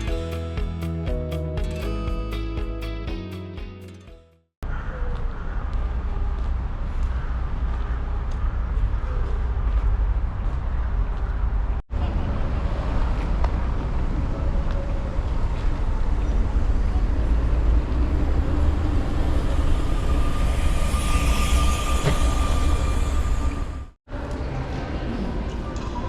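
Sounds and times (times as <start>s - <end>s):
diesel train rumbling: 16.0s - 24.0s
thin steady whine: 19.0s - 24.0s.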